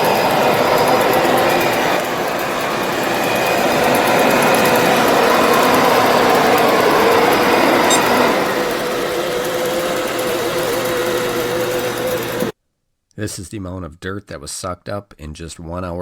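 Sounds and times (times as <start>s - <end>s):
robot vacuum motor whirring: 0.0s - 12.5s.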